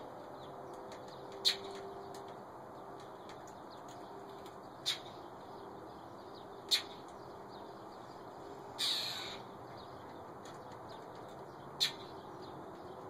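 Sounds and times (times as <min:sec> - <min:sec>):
bird calling: 0:08.8 - 0:09.6, 0:11.8 - 0:12.2.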